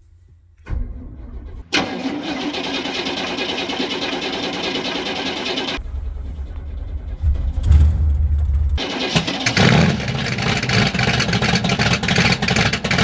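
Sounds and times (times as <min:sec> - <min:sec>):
engine starting: 0:00.6 - 0:13.0
engine low rumble: 0:05.0 - 0:12.3.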